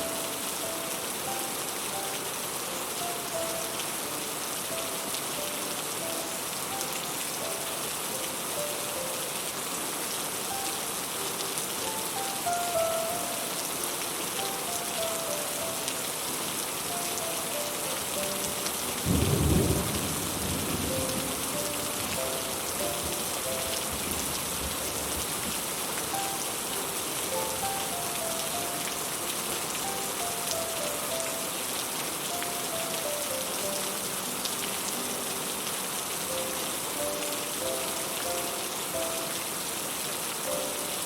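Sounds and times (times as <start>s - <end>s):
heavy rain on a roof: 0.0s - 41.0s
soft sustained melody: 0.0s - 41.0s
low roll of thunder: 19.0s - 21.5s.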